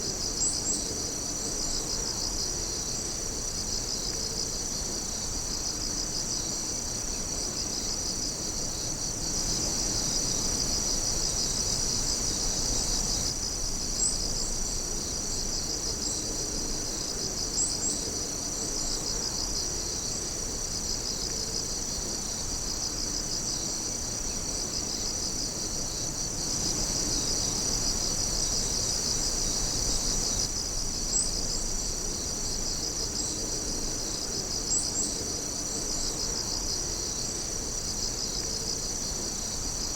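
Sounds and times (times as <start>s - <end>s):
night insects trilling: 0.0s - 39.9s
sharp insect chirps: 23.5s - 31.6s.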